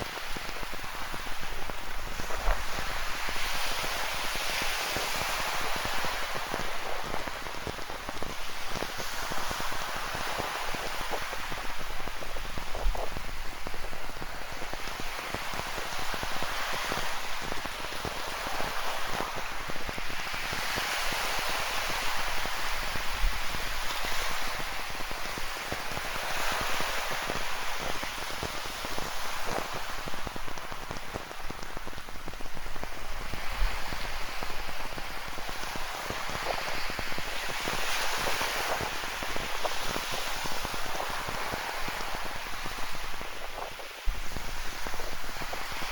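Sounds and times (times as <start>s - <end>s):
rain drops hitting: 0.0s - 4.2s, 5.0s - 23.8s, 24.5s - 45.9s
ocean surf washing in: 0.0s - 45.9s.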